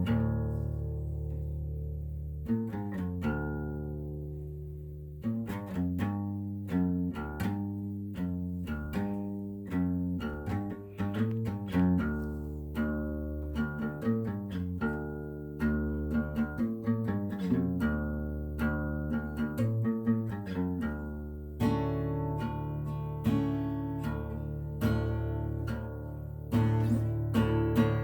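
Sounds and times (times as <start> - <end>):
low sustained bass notes: 0.0 - 28.0
plucked guitar notes: 0.0 - 28.0.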